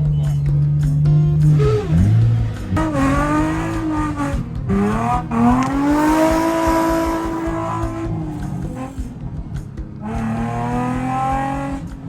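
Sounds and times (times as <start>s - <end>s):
car engine revving hard: 1.1s - 9.4s, 10.0s - 12.0s.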